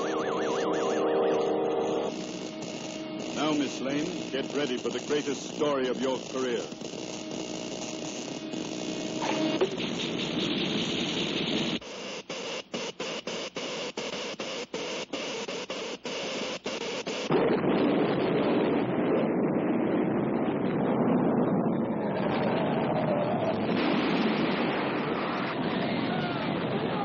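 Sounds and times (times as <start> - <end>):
electrical machine crackling: 0.0 - 17.4.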